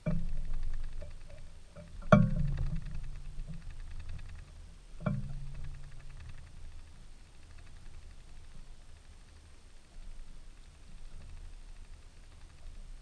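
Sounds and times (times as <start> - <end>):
sharp knocks with low ringing: 0.0 - 4.0, 5.0 - 6.2
steady low hum: 0.0 - 13.0.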